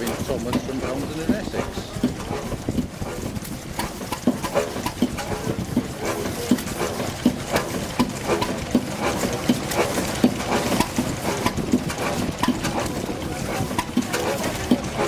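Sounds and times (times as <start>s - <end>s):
light engine clicks: 0.0s - 15.0s
stationary engine thudding: 0.0s - 15.0s.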